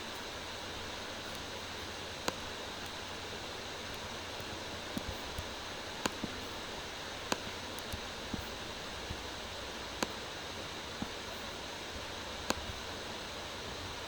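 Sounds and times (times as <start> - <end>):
microphone hiss: 0.0 - 14.0
computer mouse clicks: 3.9 - 6.4, 7.3 - 9.2, 10.0 - 10.2, 12.4 - 12.8.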